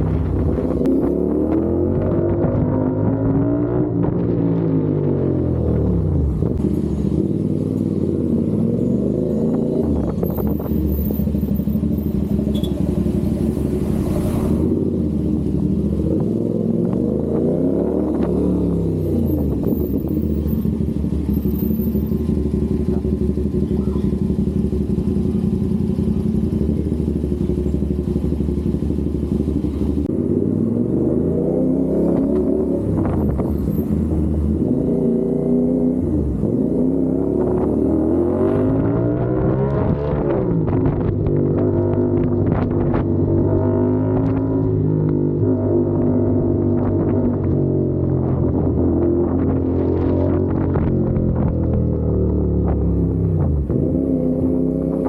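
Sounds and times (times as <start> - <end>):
motorcycle engine running: 5.3 - 17.4, 18.0 - 30.9.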